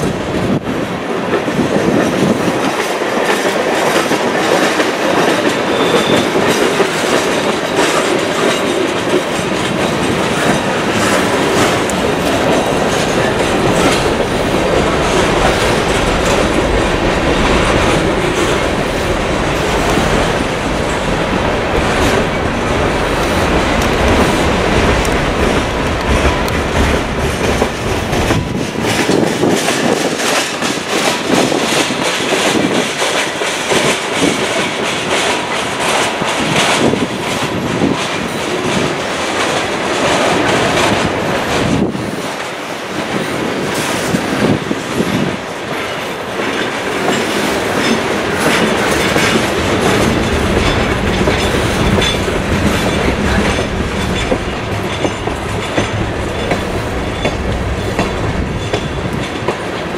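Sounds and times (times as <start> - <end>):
train wheels clattering over rail joints: 1.2 - 59.9
locomotive engine rumble: 9.2 - 29.6, 48.0 - 59.9.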